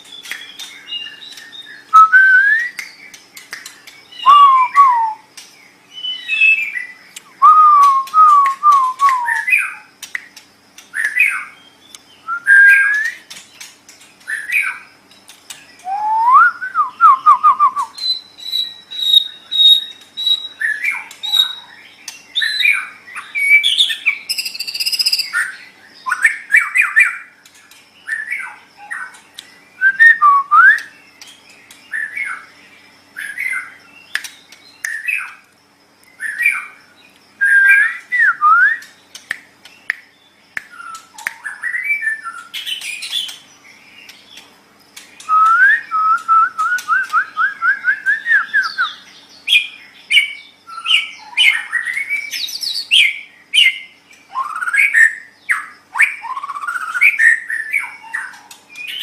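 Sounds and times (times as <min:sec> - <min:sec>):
bird singing whistled phrases: 0:00.1 - 0:05.3, 0:05.9 - 0:09.9, 0:11.0 - 0:13.3, 0:15.8 - 0:27.3, 0:29.8 - 0:31.1, 0:37.4 - 0:38.9, 0:40.6 - 0:43.4, 0:45.2 - 0:59.0.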